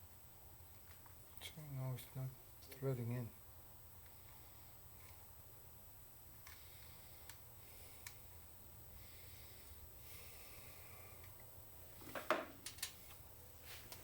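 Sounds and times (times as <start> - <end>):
steady low hum: 0.0 - 14.0
small metal parts clicking: 12.6 - 13.0.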